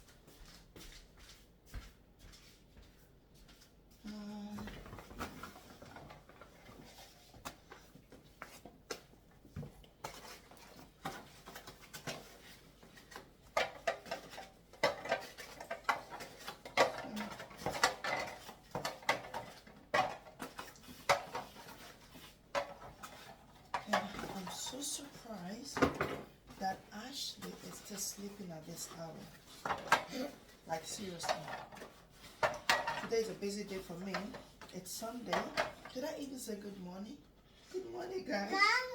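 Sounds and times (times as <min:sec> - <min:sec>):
dishes and pots clattering: 0:10.0 - 0:25.0, 0:29.5 - 0:33.4, 0:35.3 - 0:36.0.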